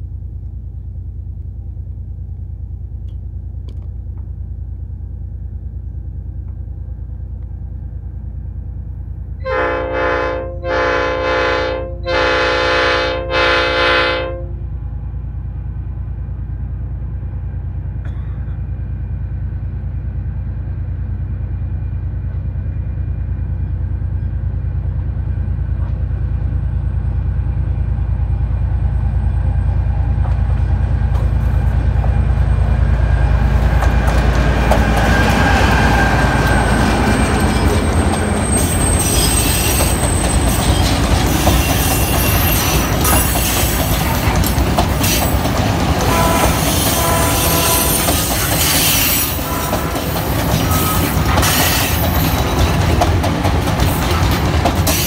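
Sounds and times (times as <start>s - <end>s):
diesel locomotive engine rumble: 0.0s - 55.0s
wheels clattering on rails: 27.9s - 55.0s
wheels squealing: 32.4s - 55.0s.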